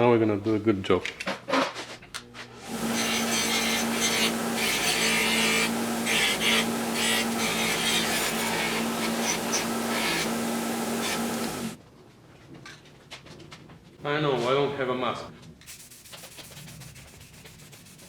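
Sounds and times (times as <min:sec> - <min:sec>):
power tool motor hum: 0:02.6 - 0:11.8
rasping scrape on metal: 0:02.6 - 0:11.8.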